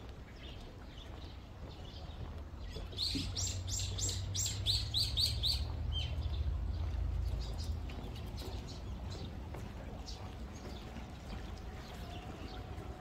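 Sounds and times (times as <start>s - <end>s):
bird chirping: 1.8s - 9.4s.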